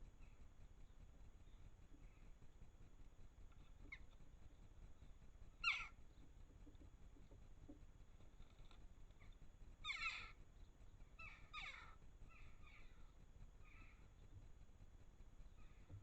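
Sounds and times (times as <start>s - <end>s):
bird downward-sliding calls: 5.6s - 6.0s, 9.8s - 10.3s.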